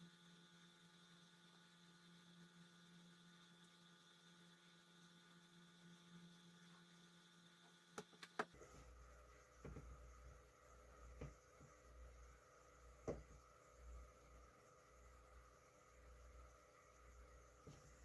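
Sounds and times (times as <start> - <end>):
aquarium filter motor humming: 0.0 - 18.0.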